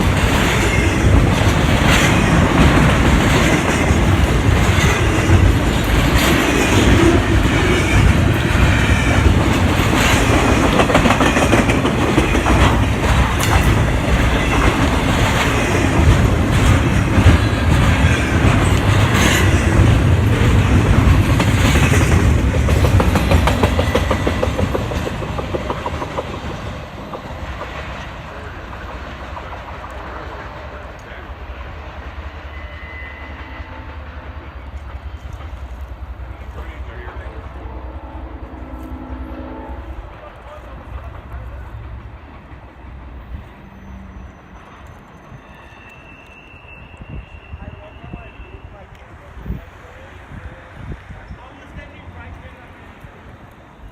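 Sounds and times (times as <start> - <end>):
wheels clicking over rail joints: 0.0 - 30.2
freight train cars rolling: 0.0 - 53.9.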